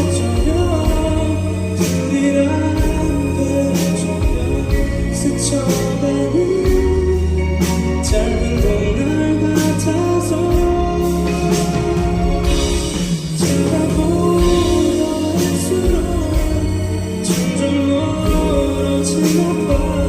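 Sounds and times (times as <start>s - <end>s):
live band music: 0.0s - 20.0s
person singing: 0.0s - 20.0s
sustained bass notes: 0.0s - 20.0s.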